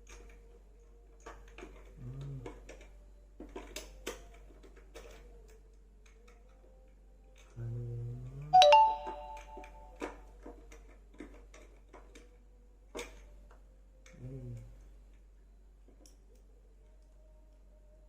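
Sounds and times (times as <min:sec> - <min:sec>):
plastic parts clicking and knocking: 0:01.1 - 0:06.6, 0:10.0 - 0:13.6
bright multi-tone chime: 0:08.6 - 0:09.8
faint steady tone: 0:08.6 - 0:10.0.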